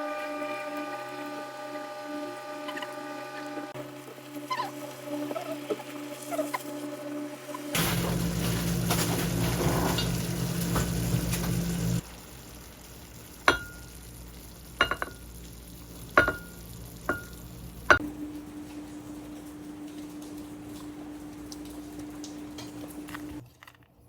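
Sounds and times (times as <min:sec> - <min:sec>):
food sizzling in a pan: 0:03.7 - 0:23.4
utensil clinking against dish: 0:14.8 - 0:15.2, 0:16.2 - 0:18.1.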